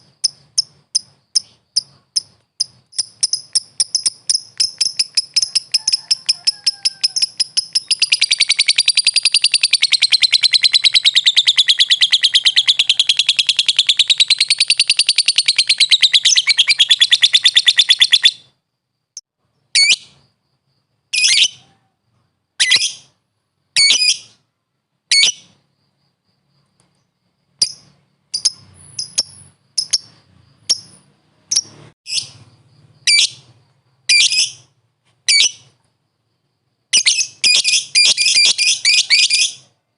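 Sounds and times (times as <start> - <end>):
lovebird chattering trill: 0.0 - 18.5, 27.6 - 32.4, 37.0 - 39.6.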